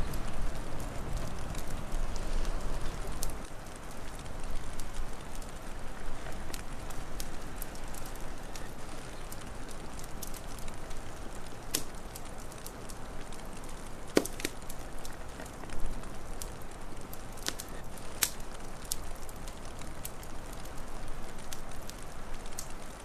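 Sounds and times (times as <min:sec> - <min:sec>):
fire hissing: 0:00.0 - 0:23.0
wood fire popping: 0:00.0 - 0:23.0.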